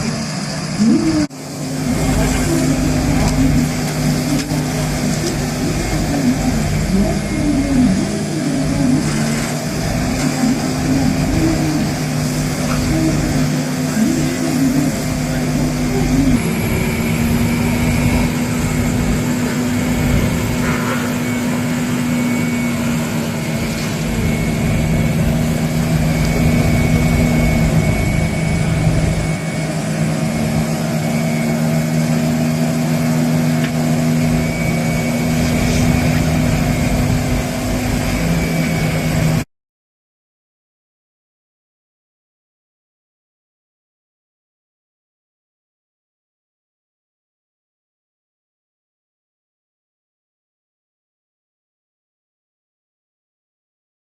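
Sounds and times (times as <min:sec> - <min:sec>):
vehicle engine running: 0:00.0 - 0:39.4.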